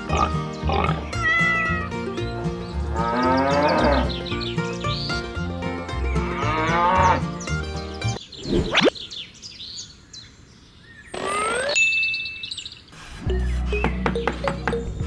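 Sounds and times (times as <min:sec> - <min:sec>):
cow mooing: 0:02.9 - 0:04.2, 0:06.2 - 0:07.2
short rising chirps: 0:08.2 - 0:09.0
rising whistle-like glide: 0:08.4 - 0:08.9.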